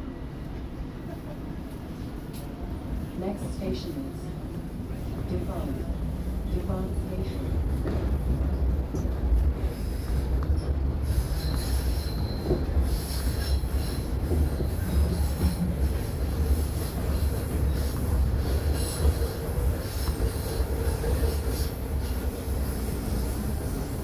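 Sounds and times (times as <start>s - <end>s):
train wheels rumbling on rail: 0.0s - 24.0s
high-pitched wheel squeal: 11.1s - 14.0s.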